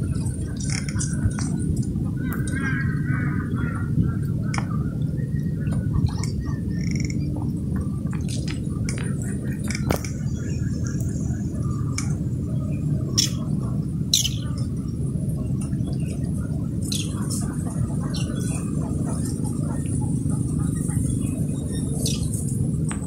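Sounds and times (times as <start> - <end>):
steady low rumble: 0.0 - 23.0
bird chirps and calls: 13.2 - 13.5, 14.1 - 14.6, 16.8 - 19.3, 21.7 - 22.3.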